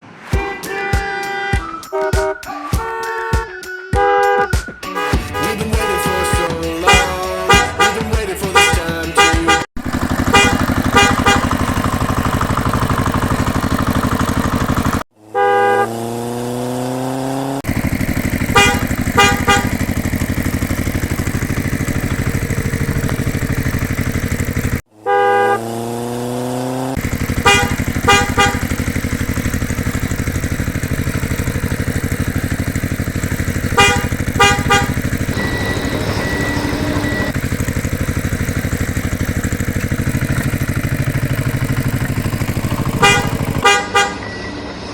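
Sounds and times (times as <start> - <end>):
horn toots: 0.0 - 14.4, 15.3 - 44.9
tractor engine running: 5.0 - 15.1, 17.6 - 25.2, 26.8 - 44.9.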